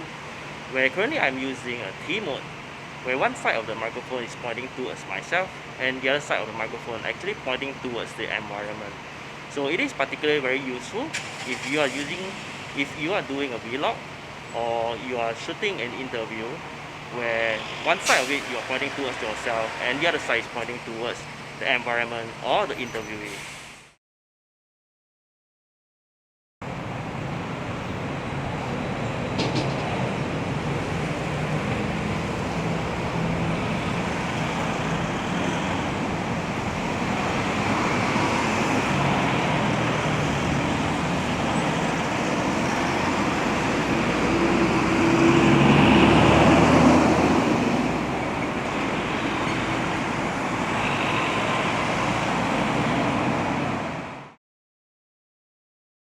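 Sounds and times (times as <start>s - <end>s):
passing road traffic: 0.0s - 23.9s, 26.6s - 54.4s
vehicle passing loudly: 29.7s - 54.1s.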